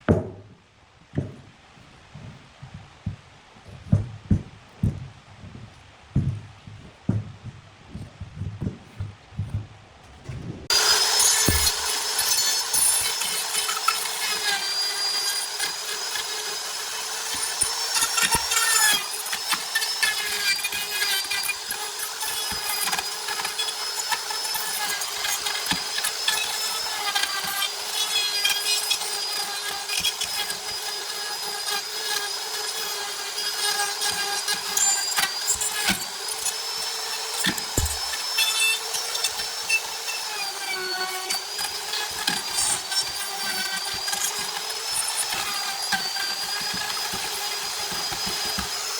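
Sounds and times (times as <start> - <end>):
turning tool scraping wood: 1.1 - 48.9
wood lathe whine: 10.6 - 48.9.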